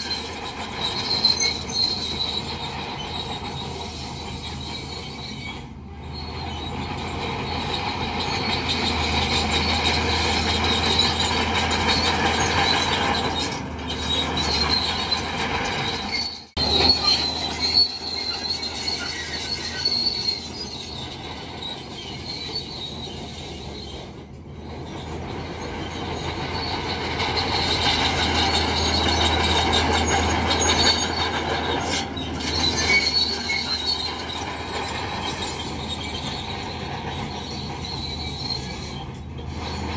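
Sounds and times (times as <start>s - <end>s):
bulldozer diesel engine rumble: 0.0s - 39.9s
metallic squeal of steel tracks: 0.0s - 39.9s.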